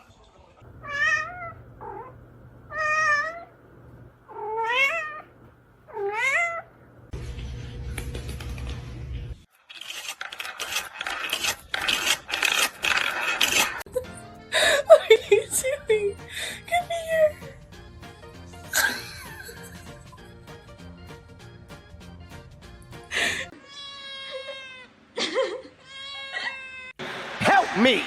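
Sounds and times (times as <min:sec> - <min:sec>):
cat meowing: 0:00.8 - 0:03.5, 0:04.3 - 0:05.3, 0:05.9 - 0:06.7, 0:23.6 - 0:24.9, 0:25.8 - 0:27.0.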